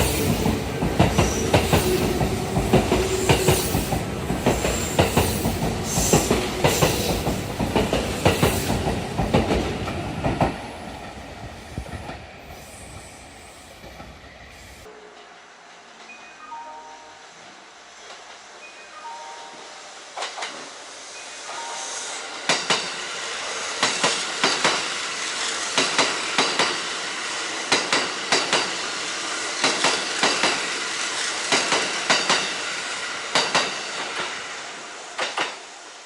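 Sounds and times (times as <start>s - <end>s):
train wheels clicking over rail joints: 0.0s - 11.2s, 22.3s - 35.7s
train running rush: 0.0s - 16.2s, 19.4s - 36.0s.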